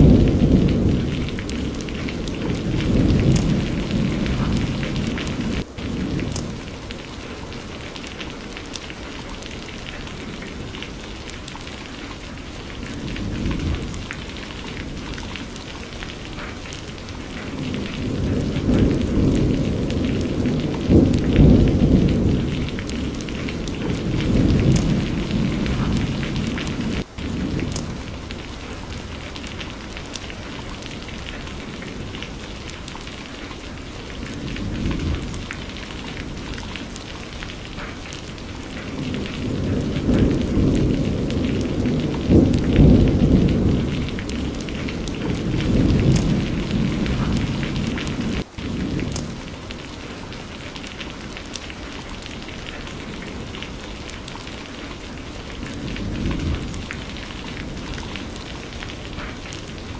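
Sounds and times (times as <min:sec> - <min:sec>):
rolling thunder: 0:00.0 - 0:51.6, 0:52.2 - 0:59.9
heavy rain: 0:00.0 - 0:59.9.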